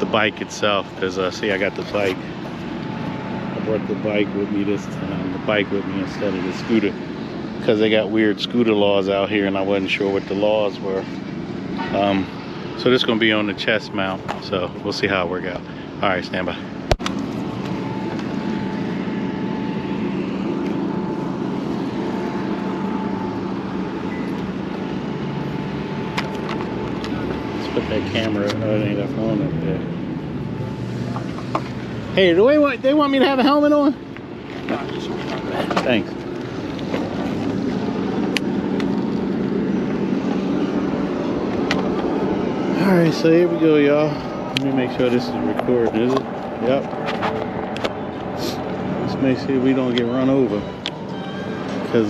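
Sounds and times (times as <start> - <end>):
faint steady tone: 0.0 - 31.4, 47.9 - 52.0
vehicle traffic rumble: 0.0 - 52.0.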